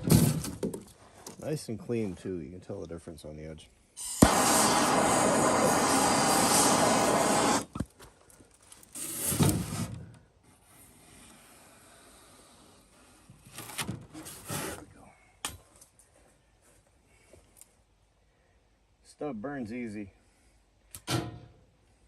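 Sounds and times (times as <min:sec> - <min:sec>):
gas torch flame hissing: 0:04.0 - 0:07.8.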